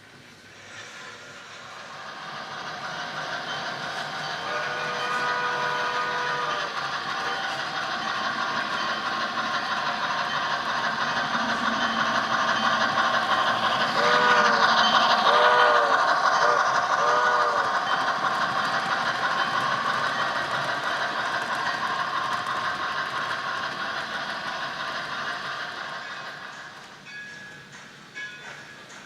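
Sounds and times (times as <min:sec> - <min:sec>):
grade-crossing signal: 0:00.6 - 0:27.6
model train steam whistle: 0:04.1 - 0:08.0, 0:13.5 - 0:18.2.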